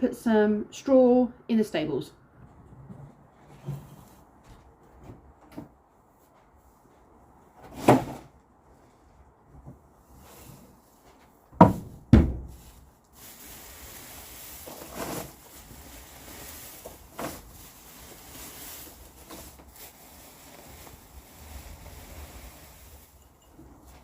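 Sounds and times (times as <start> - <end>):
loud wooden knocks: 11.6 - 12.5.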